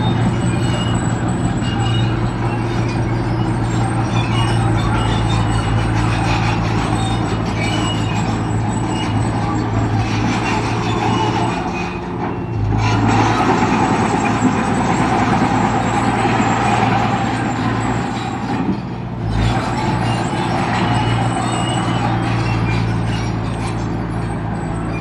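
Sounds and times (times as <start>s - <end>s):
heavy diesel machine engine: 0.0s - 25.0s.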